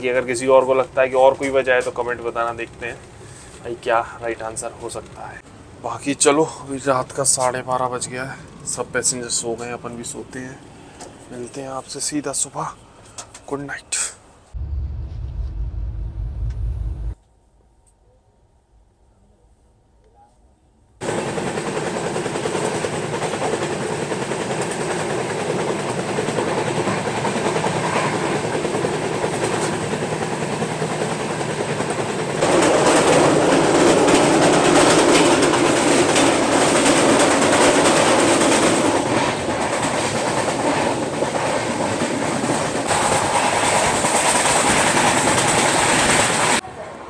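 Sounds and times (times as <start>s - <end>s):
train wheels rumbling on rails: 0.0s - 10.6s, 21.0s - 46.6s.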